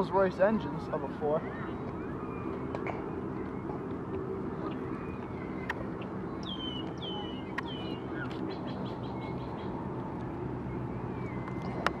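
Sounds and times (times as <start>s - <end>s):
small bird chirping: 4.6s - 9.7s.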